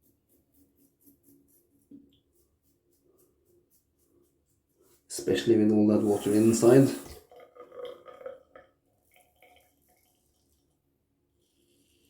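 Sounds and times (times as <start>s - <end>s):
razor scraping over face: 5.8s - 7.2s.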